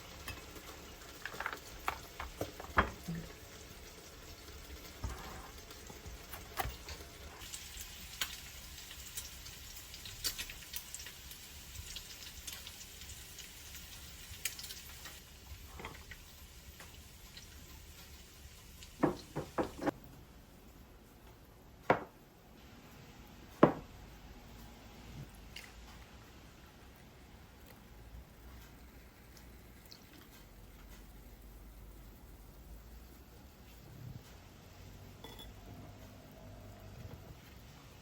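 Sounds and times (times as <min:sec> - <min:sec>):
food sizzling in a pan: 0:00.0 - 0:20.0
kitchenware knocks: 0:19.0 - 0:19.9, 0:21.9 - 0:22.1, 0:23.6 - 0:23.9.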